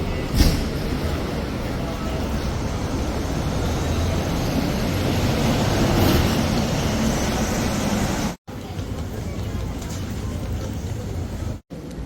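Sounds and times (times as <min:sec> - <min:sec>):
bus engine rumble from inside: 0:00.0 - 0:08.4.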